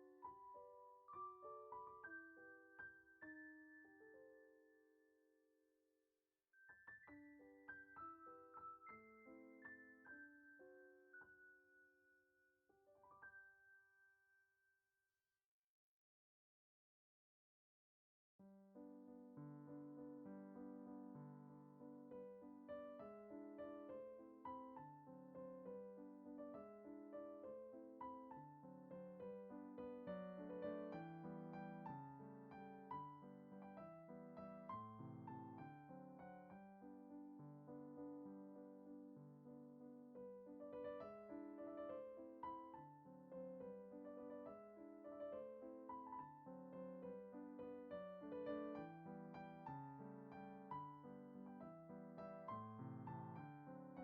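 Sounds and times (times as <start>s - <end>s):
soft piano music: 0.0s - 5.3s, 6.6s - 14.4s, 18.4s - 54.0s.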